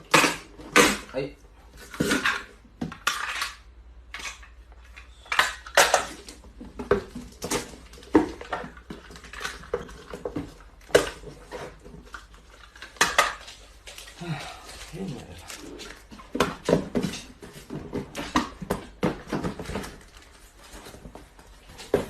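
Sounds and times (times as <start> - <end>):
hard objects clinking together: 1.8 - 14.2.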